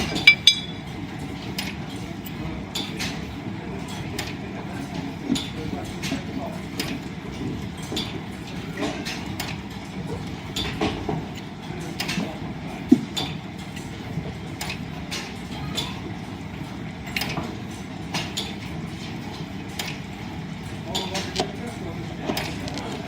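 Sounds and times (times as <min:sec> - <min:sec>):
clicks and knocks: 0:00.1 - 0:00.9.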